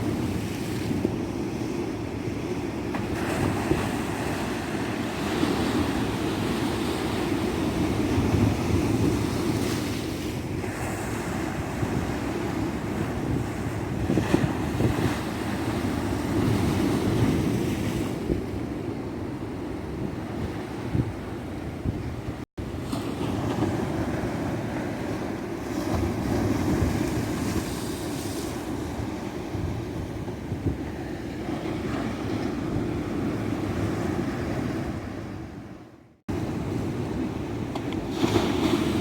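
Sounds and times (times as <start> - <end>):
ocean waves washing onto beach: 0.0 - 39.0
wind buffeting microphone: 0.0 - 39.0.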